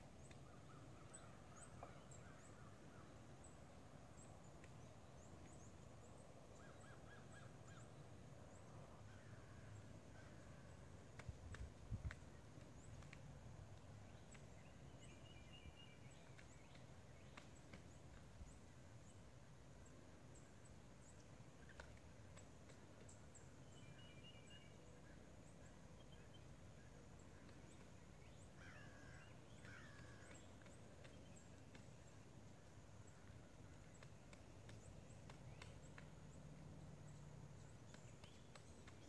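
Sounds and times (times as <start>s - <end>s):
distant bird chirps: 0.1s - 39.0s
faint taps: 33.2s - 36.2s.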